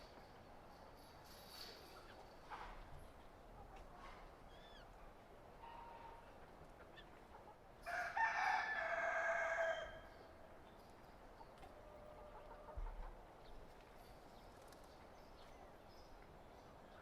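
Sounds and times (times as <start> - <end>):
rooster crowing: 7.8 - 10.1.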